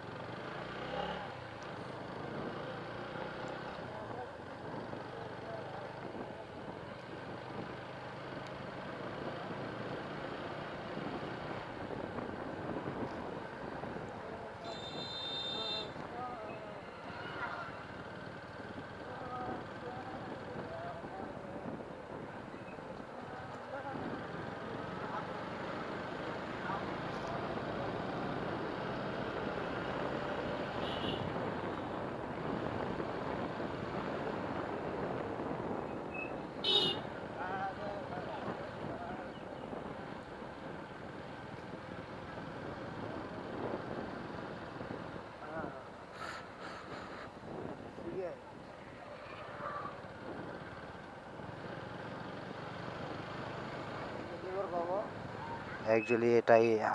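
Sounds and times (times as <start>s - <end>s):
road and wind noise: 0.0s - 56.9s
wind on microphone: 10.9s - 14.4s, 31.2s - 36.7s, 37.4s - 45.8s, 46.6s - 48.6s.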